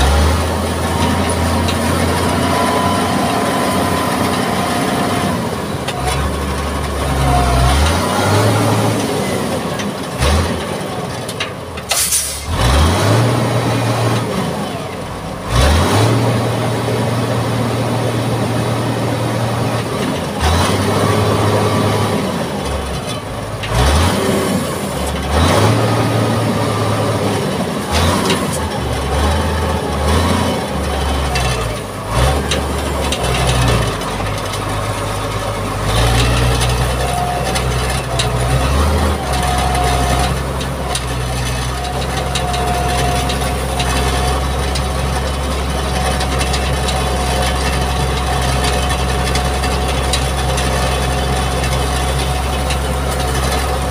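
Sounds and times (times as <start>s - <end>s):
diesel engine running under load: 0.0s - 53.9s
short sharp hisses: 11.9s - 12.5s.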